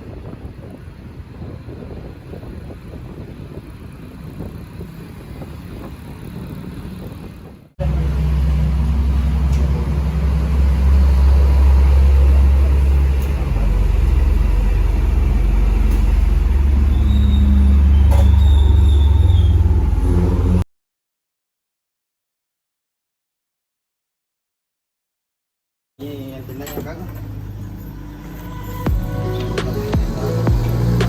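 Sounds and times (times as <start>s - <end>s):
low rumbling: 0.0s - 20.6s
vehicle engine humming: 0.0s - 20.6s, 26.0s - 31.0s.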